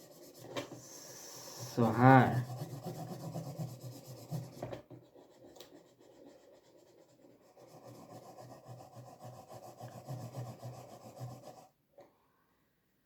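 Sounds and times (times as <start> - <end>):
pen scribbling on paper: 0.0 - 11.7.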